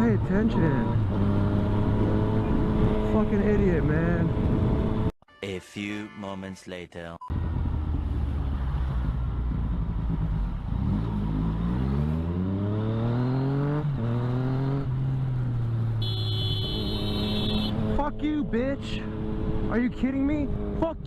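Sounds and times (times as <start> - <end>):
motorcycle engine accelerating: 0.6 - 5.1, 7.4 - 16.0, 19.0 - 21.0.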